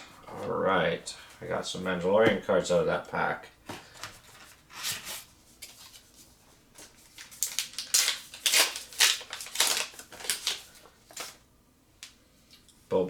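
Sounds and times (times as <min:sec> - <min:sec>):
foil wrapper tearing and crinkling: 0:06.9 - 0:11.4.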